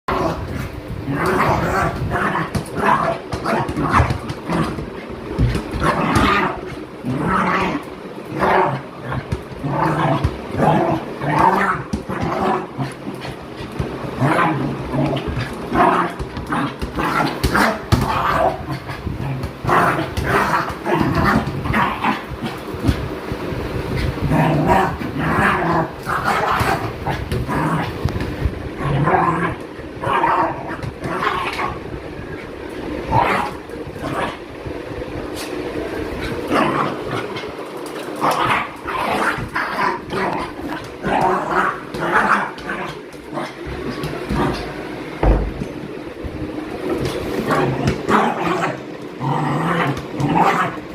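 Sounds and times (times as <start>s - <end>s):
thump: 45.2s - 45.6s.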